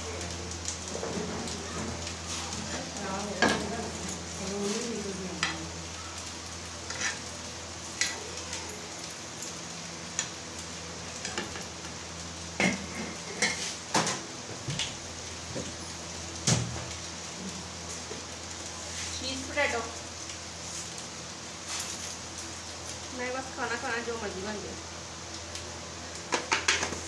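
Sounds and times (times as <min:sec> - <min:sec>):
fries sizzling in a frying pan: 0:00.0 - 0:27.0
tongs clicking and scraping a pan: 0:06.8 - 0:08.2.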